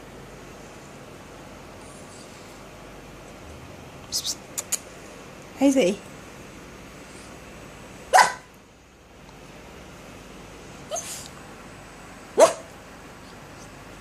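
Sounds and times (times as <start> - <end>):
dog barking: 8.1 - 8.5, 12.4 - 12.7.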